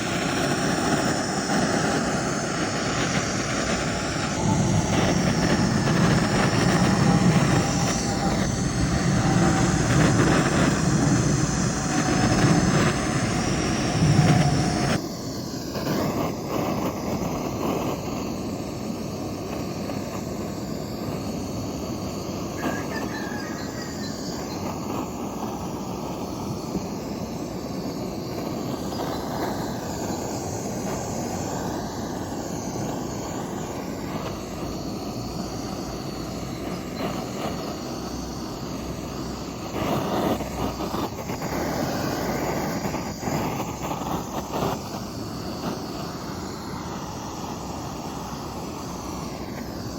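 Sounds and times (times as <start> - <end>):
woodworking power tool running: 0.0 - 15.0.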